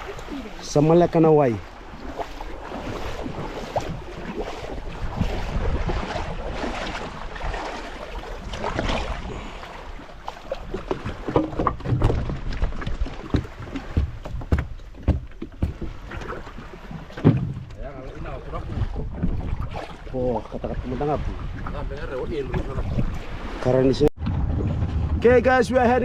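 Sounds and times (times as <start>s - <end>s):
wind buffeting microphone: 0.0s - 16.8s, 17.5s - 26.0s
water washing: 0.0s - 26.0s
boat knocks and bumps: 1.9s - 9.2s, 9.8s - 23.6s.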